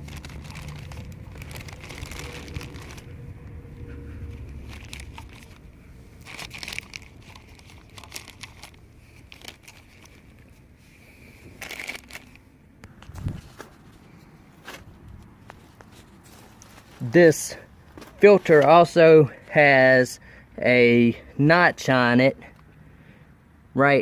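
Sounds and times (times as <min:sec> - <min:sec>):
low rumble: 0:00.0 - 0:10.8
plastic parts crinkling and scraping: 0:00.0 - 0:19.0.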